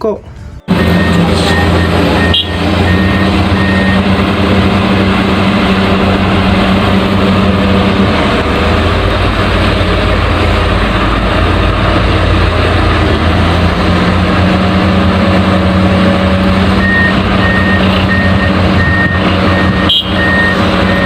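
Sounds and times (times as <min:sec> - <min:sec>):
diesel engine running: 0:00.0 - 0:21.0
reversing alarm beeping: 0:00.6 - 0:04.6, 0:16.8 - 0:21.0.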